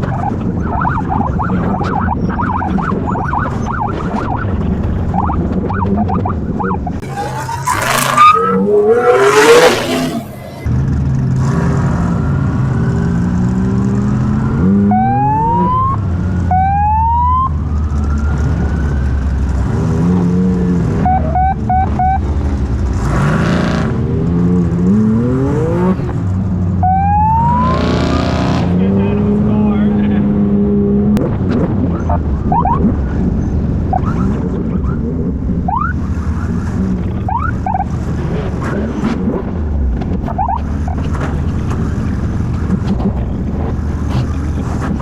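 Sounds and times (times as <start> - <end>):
race car engine accelerating: 0.0 - 15.8.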